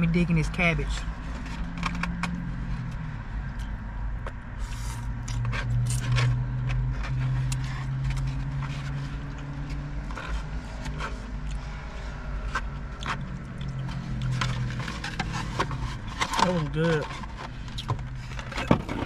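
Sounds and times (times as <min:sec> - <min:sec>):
idling car hum: 0:00.0 - 0:19.0
utensil scraping takeout container: 0:04.6 - 0:19.0.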